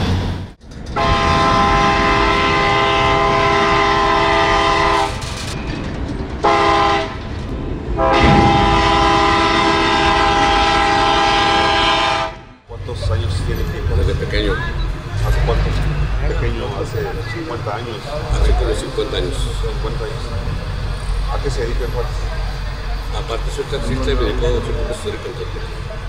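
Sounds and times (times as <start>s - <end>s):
train air horn blasts: 1.0s - 5.2s, 6.4s - 7.2s, 8.0s - 12.6s.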